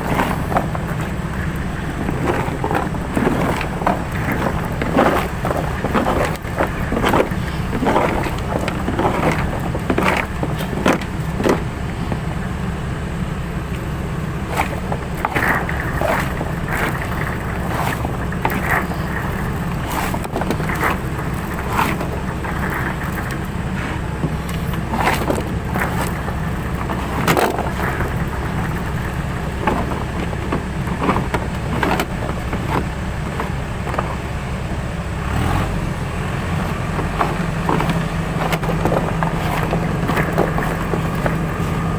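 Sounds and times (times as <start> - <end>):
knocks and clatters: 0.0 - 12.3, 13.7 - 34.5, 36.3 - 41.9
engine running: 0.0 - 41.9.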